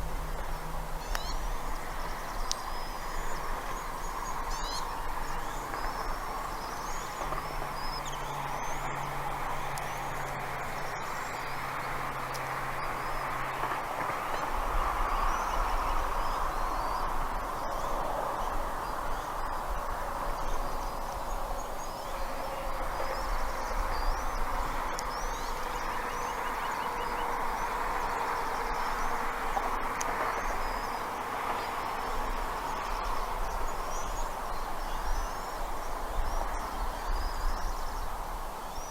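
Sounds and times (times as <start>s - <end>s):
steady rushing background noise: 0.0s - 38.9s
small birds chirping: 1.0s - 8.9s.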